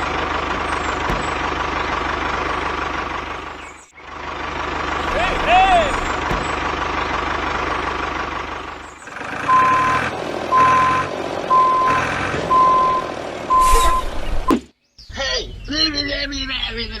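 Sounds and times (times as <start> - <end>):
truck reversing alarm beeping: 9.4 - 14.6.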